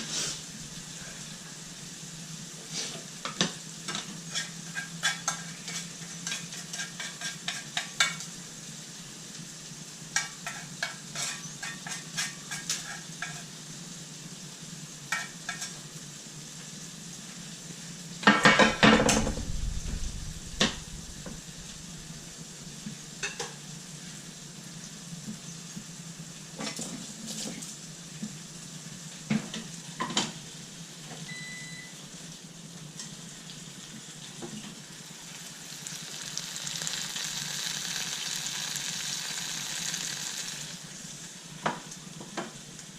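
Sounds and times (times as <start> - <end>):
food sizzling in a frying pan: 0.0 - 42.9
utensils scraping a pan: 4.0 - 8.2, 10.2 - 13.5
loud clatter: 18.7 - 21.6.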